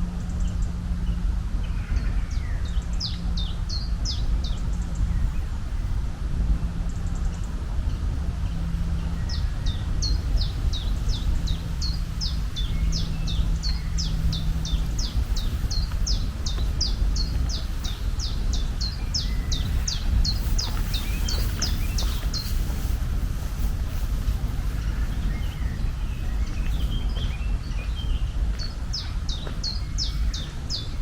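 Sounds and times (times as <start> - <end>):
low rumble: 0.0 - 31.0
bird chirping: 6.9 - 31.0.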